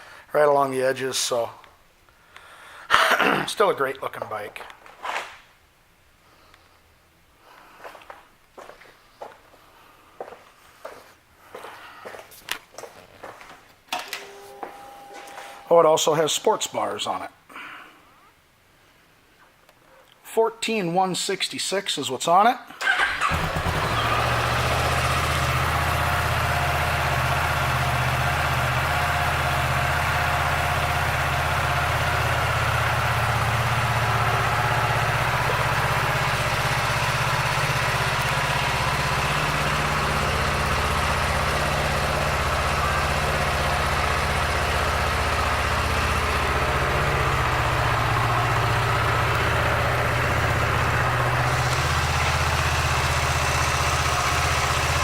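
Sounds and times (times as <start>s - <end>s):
motorcycle engine idling: 23.2s - 55.0s.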